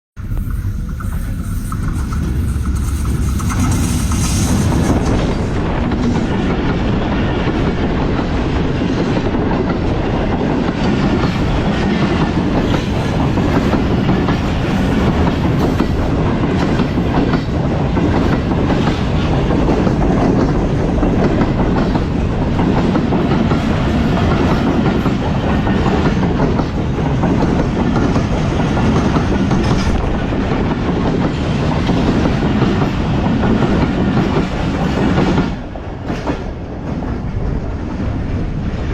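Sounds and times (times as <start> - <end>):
train wheels rumbling on track: 0.1 - 38.9
train clatter: 0.2 - 38.9.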